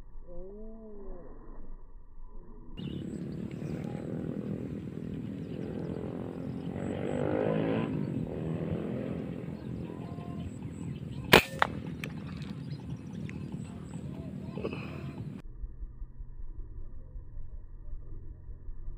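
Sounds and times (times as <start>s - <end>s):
low steady rumble: 0.0s - 18.9s
air rifle shot: 11.2s - 12.5s.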